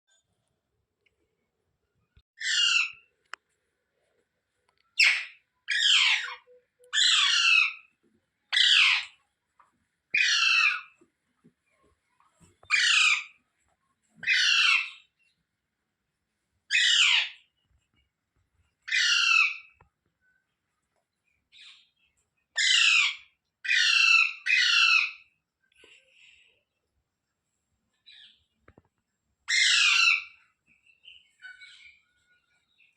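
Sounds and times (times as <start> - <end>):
parakeet calling: 2.4 - 3.1, 4.9 - 7.9, 8.5 - 9.2, 10.1 - 11.0, 12.6 - 13.4, 14.2 - 15.3, 16.7 - 17.6, 18.8 - 19.8, 21.5 - 25.3, 29.5 - 30.4.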